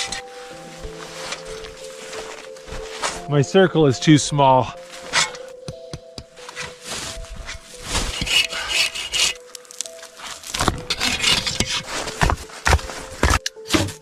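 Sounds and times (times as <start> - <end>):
hand saw cutting wood: 8.0 - 9.4, 10.6 - 14.0.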